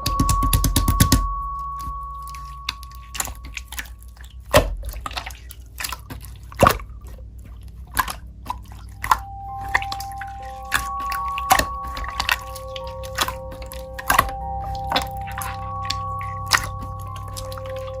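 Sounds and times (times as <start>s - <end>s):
slime being squeezed: 2.2s - 18.0s
wet pops and clicks: 7.9s - 17.6s.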